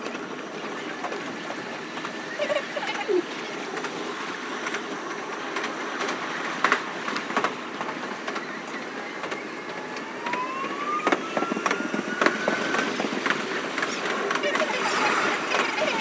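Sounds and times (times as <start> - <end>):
train rushing noise: 0.0 - 16.0
train motor whine: 7.8 - 16.0.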